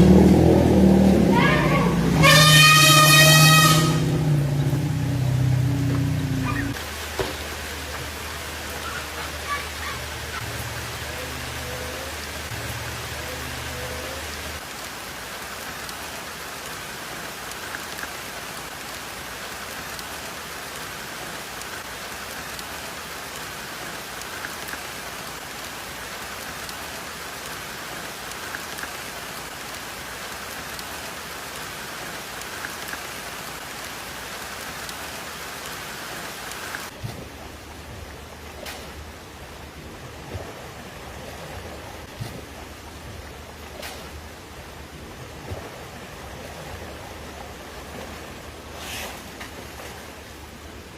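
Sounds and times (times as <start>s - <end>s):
low hum: 0.0s - 8.1s
rushing water hiss: 0.0s - 50.9s.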